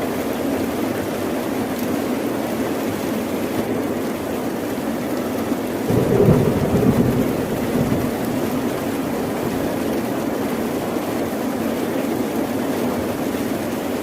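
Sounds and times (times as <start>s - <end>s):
steady rain: 0.0s - 14.0s
thunder rumbling: 5.9s - 10.8s.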